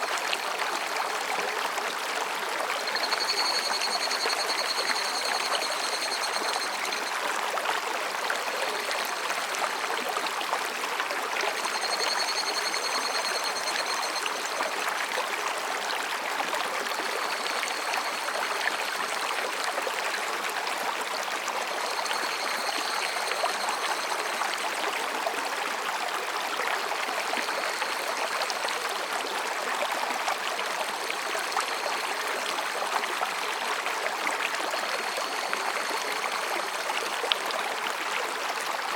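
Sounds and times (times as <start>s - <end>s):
stream splashing over rocks: 0.0s - 38.9s
cicadas calling in pulsing bouts: 2.8s - 7.2s, 11.6s - 14.7s, 17.0s - 19.3s, 21.6s - 24.8s, 34.6s - 37.0s.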